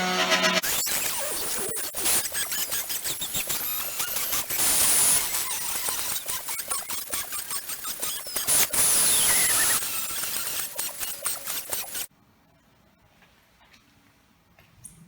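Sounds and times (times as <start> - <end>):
crackling cutting noise: 0.6 - 12.1
milling spindle whine: 0.7 - 12.1.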